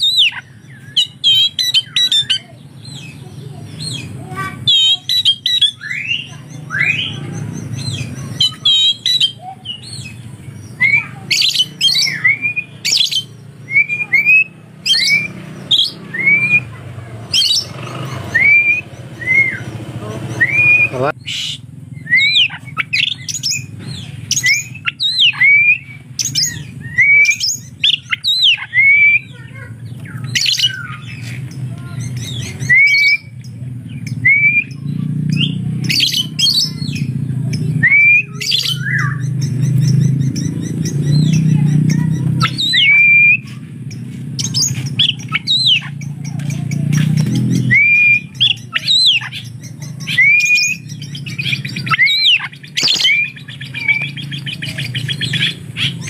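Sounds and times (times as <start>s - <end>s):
bird whistling song: 0.0s - 56.0s
sharp squeaky bird notes: 0.0s - 56.0s.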